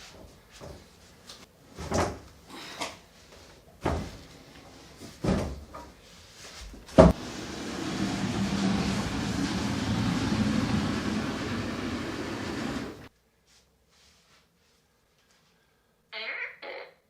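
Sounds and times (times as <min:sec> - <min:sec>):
furniture being moved thumps: 0:05.0 - 0:05.8, 0:06.6 - 0:13.1
steady rumbling noise: 0:07.1 - 0:13.1.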